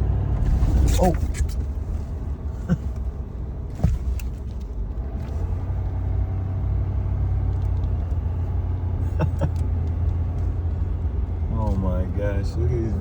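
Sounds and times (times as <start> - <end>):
diesel engine rumbling: 0.0 - 13.0
tires in snow: 0.0 - 13.0.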